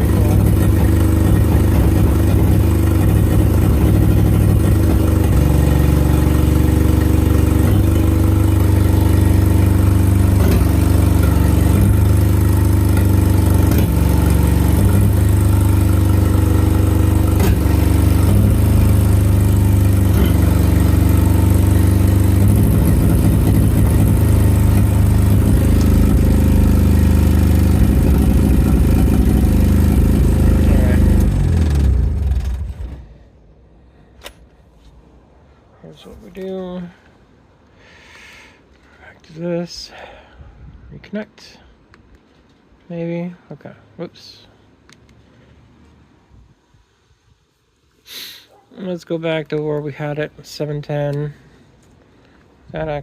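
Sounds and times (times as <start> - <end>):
car engine idling: 0.0 - 34.2.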